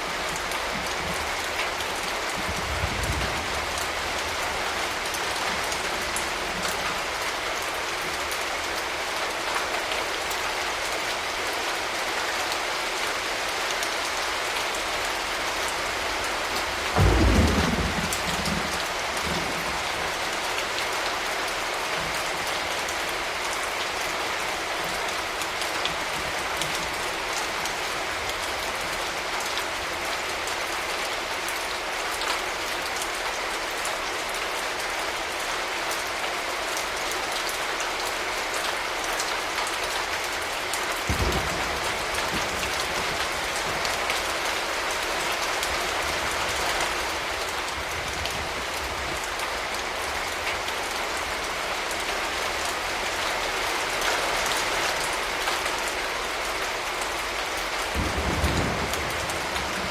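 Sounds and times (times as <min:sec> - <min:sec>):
steady rain: 0:00.0 - 0:59.9
rumble of thunder: 0:16.9 - 0:20.3, 0:41.1 - 0:43.8, 0:58.0 - 0:59.9.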